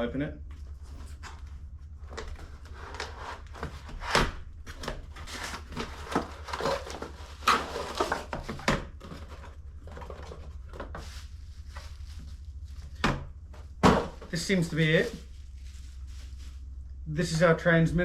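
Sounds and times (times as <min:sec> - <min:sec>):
steady low hum: 0:00.0 - 0:18.0
packaging tearing and crinkling: 0:04.0 - 0:08.4.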